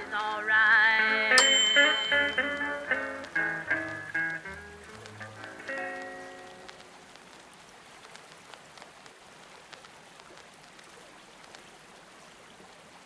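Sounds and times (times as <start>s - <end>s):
blues record music: 0.0s - 7.2s
rain-like water ambience: 0.0s - 13.0s
small ticks and crackles: 2.2s - 13.0s.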